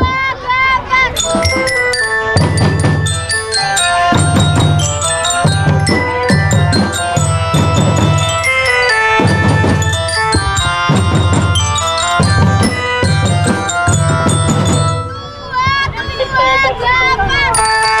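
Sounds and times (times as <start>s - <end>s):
bell lyra melody: 1.1s - 15.6s, 17.6s - 18.0s
marching drums: 1.2s - 15.4s.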